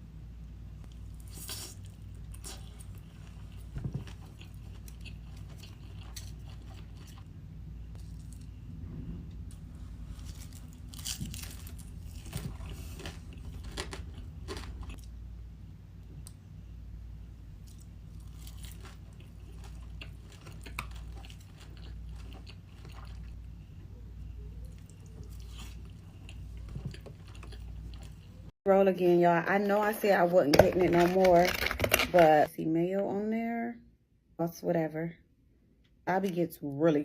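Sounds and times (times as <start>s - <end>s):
person chewing food: 0.8s - 7.3s, 9.5s - 15.2s, 17.6s - 28.5s.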